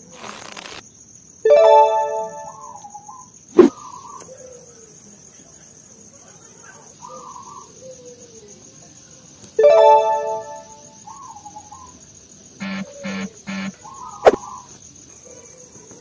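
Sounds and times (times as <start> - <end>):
birds calling faintly: 11.0 - 16.0
high thin whine: 12.6 - 13.8.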